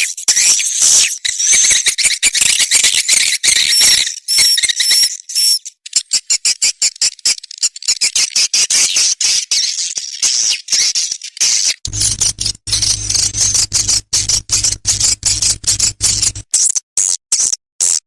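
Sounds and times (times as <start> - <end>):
rapid clicks: 11.9 - 16.4
swiftlets chittering: 11.9 - 16.4.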